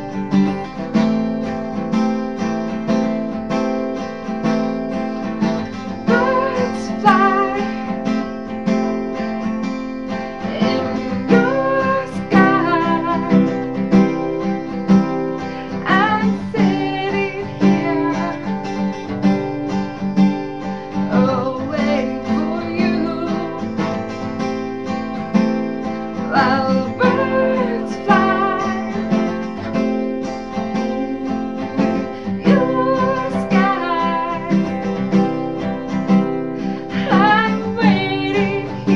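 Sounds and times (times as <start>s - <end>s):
strummed acoustic guitar: 0.0s - 38.9s
woman singing: 5.7s - 8.2s, 10.4s - 14.2s, 15.6s - 19.0s, 20.9s - 24.3s, 26.2s - 35.7s, 36.8s - 38.9s.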